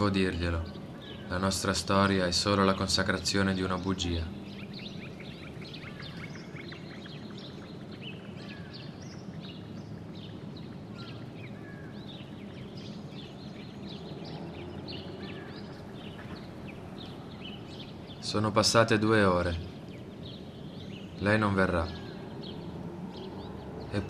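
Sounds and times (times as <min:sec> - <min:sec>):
low background rumble: 0:00.0 - 0:24.0
small birds chirping and twittering: 0:00.0 - 0:24.0.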